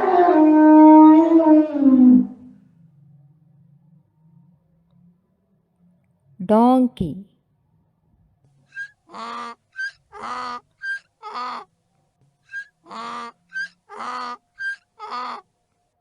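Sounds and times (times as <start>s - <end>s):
donkey braying: 8.7s - 11.7s, 12.5s - 15.5s.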